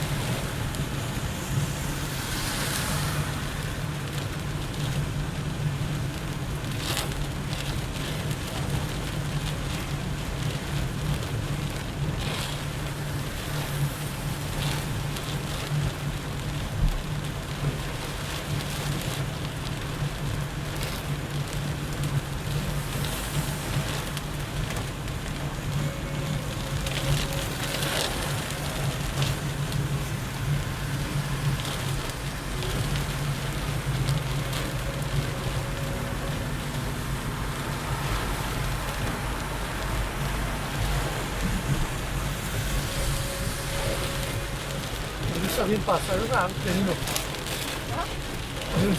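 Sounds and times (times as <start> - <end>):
heavy rain pelting a car: 0.0 - 48.9
sharp raindrop hits: 0.0 - 48.9
car driving hum: 19.4 - 48.9.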